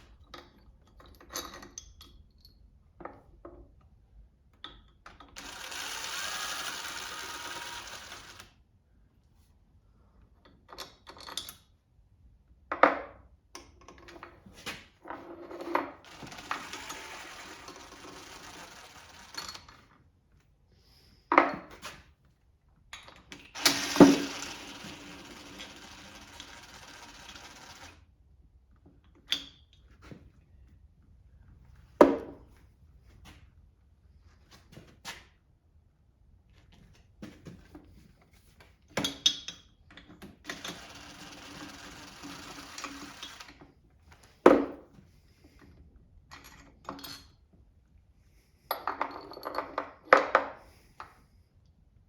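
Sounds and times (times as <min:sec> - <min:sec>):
steady rasping: 0:16.1 - 0:19.7, 0:23.6 - 0:27.9.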